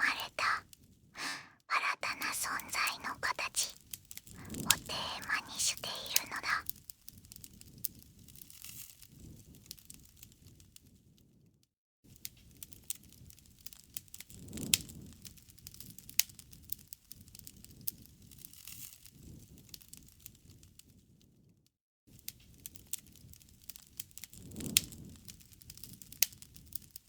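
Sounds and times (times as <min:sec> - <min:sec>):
low rumble of flames: 0:22.5 - 0:26.9.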